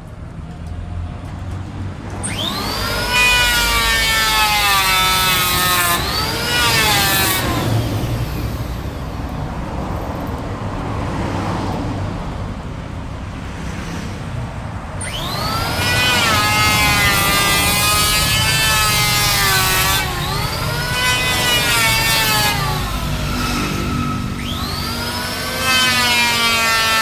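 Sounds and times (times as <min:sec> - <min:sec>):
power tool cutting wood: 0:02.1 - 0:09.4, 0:15.0 - 0:27.0.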